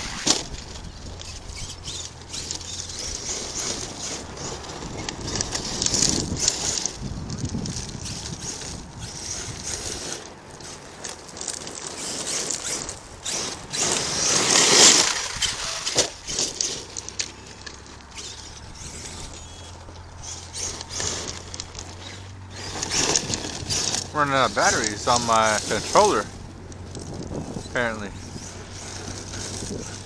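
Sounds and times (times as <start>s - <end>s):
loud rush of noise: 0.0s - 0.9s
rc truck running over dirt: 0.0s - 30.0s
steady low hum: 0.0s - 30.0s.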